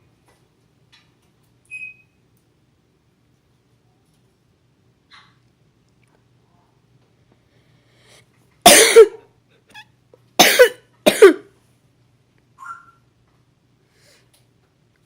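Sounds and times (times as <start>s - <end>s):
faint short squeak: 1.7s - 2.2s
harsh coughing sounds: 8.6s - 9.3s, 10.4s - 11.5s.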